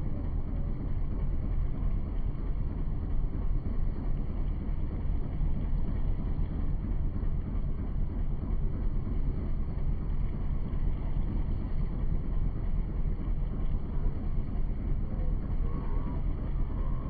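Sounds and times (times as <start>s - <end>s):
boat low rumble: 0.0s - 17.0s.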